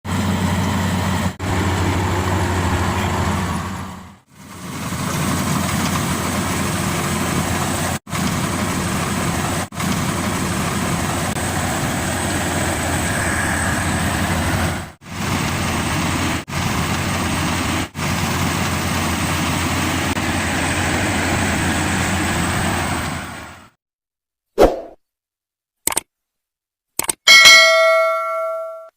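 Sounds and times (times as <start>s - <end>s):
combine harvester drone: 0.1s - 23.8s.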